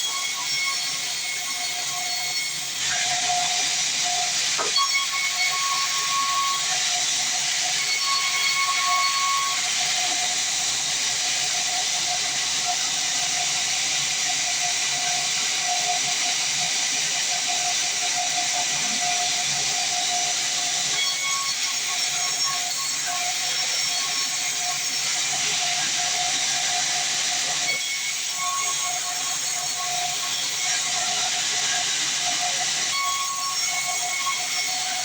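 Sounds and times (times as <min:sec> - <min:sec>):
band saw blade cutting log: 0:01.9 - 0:11.4.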